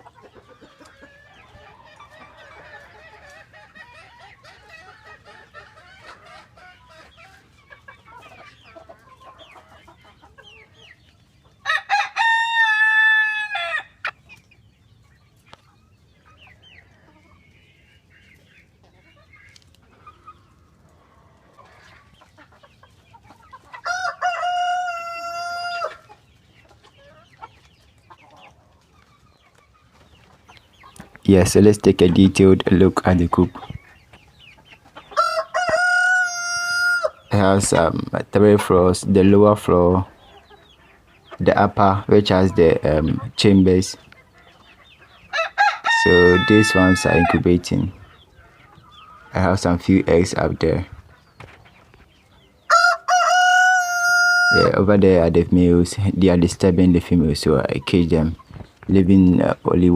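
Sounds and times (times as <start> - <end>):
chickens clucking: 0.0 - 59.9
rooster crowing: 11.6 - 14.0, 23.8 - 26.0, 35.2 - 37.2, 45.3 - 47.5, 52.7 - 54.7.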